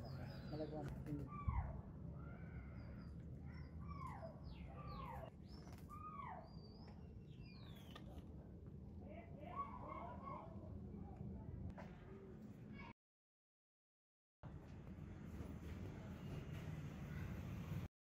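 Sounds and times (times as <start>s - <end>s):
birds calling with falling chirps: 2.2s - 8.2s.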